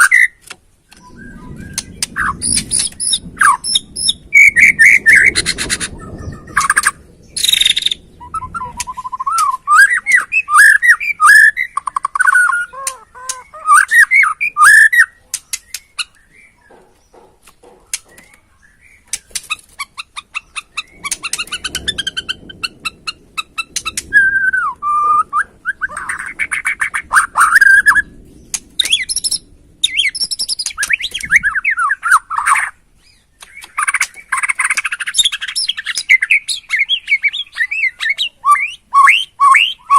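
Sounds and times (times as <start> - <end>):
bird singing whistled phrases: 0.0 - 16.6, 23.9 - 28.1, 35.0 - 39.9
bird dry clicking rattles: 15.3 - 18.4, 19.1 - 19.9.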